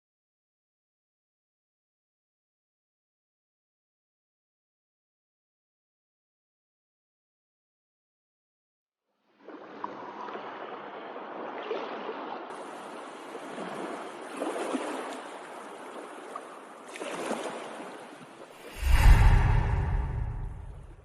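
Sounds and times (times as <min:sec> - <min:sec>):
sea water splashing along a boat: 0:09.3 - 0:18.6.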